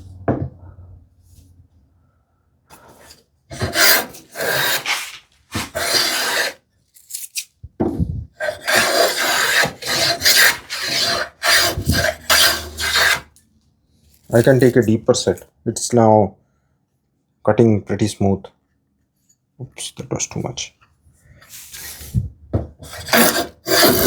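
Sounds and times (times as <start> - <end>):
hand plane shaving wood: 3.5 - 6.6, 8.4 - 13.3, 22.8 - 24.0.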